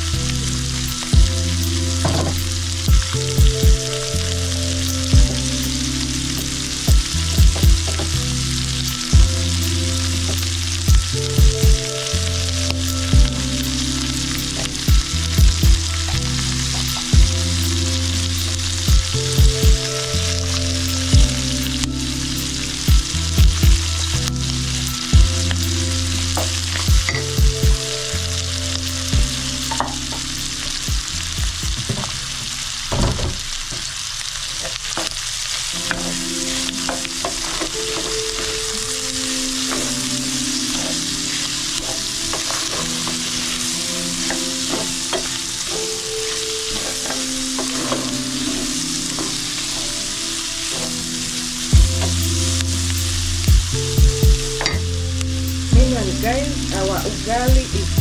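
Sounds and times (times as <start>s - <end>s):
food sizzling in a pan: 0.0s - 58.0s
wooden spoon scraping a pan: 39.6s - 51.3s.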